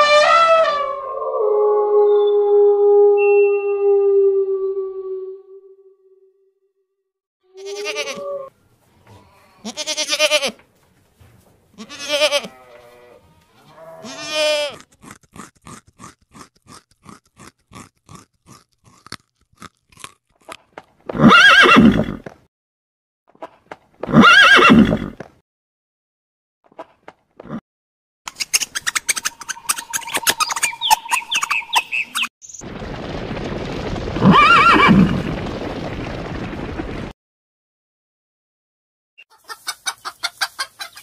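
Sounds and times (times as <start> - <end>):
quick crunching clicks: 14.8 - 20.9
horse whinnies: 21.1 - 22.2, 24.1 - 25.2, 34.2 - 35.1.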